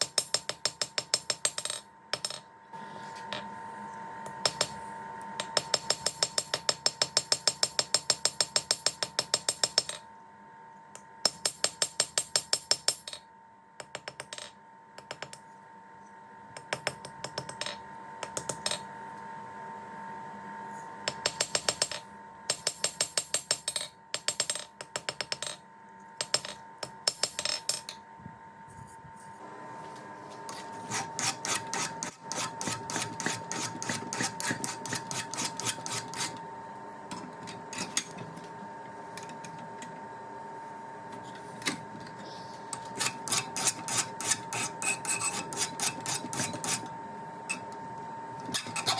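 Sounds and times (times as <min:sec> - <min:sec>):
steady hum: 0:25.2 - 0:48.9.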